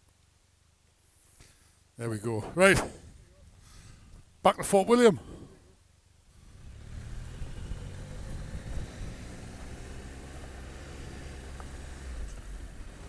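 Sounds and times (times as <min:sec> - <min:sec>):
wind and road noise: 0:02.0 - 0:13.0
motorcycle engine running: 0:06.4 - 0:13.0.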